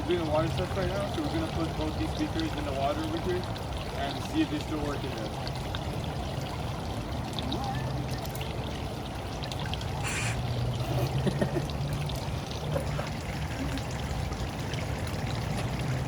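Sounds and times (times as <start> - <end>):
water running and trickling: 0.0 - 16.0
burst of hiss: 10.0 - 10.4.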